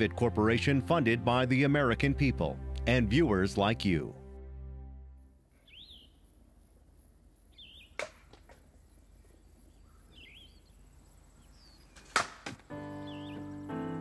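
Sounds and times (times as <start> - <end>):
birds chirping: 5.4 - 14.0.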